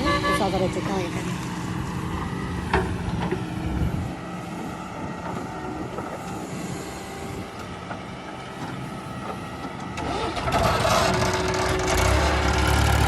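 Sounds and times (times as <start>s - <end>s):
diesel engine running: 0.0s - 13.0s
wind on microphone: 1.2s - 7.7s.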